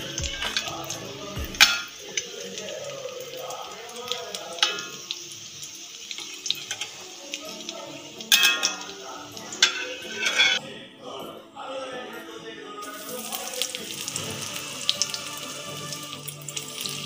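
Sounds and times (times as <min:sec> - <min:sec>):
food sizzling in oil: 0:00.0 - 0:10.6, 0:12.8 - 0:17.0
metal spatula clinking on pan: 0:01.6 - 0:02.0, 0:04.6 - 0:05.1, 0:08.3 - 0:10.6.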